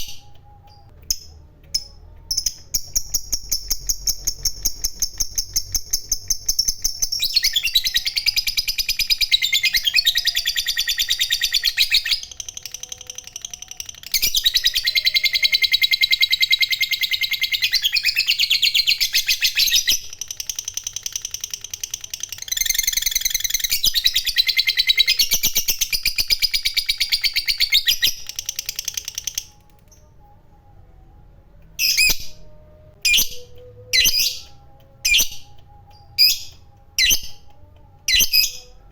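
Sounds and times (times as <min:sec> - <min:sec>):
lovebird high-pitched chatter: 0:01.1 - 0:29.6.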